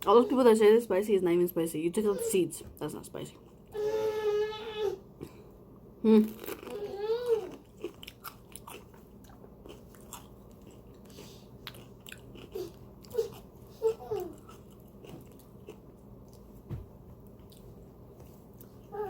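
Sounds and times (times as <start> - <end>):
crunching and chewing: 6.3 - 19.0.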